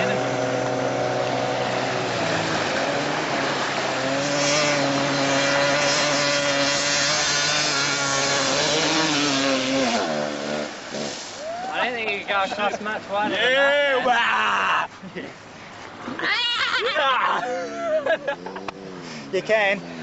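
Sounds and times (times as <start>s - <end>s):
dirt bike engine revving: 0.0s - 11.2s.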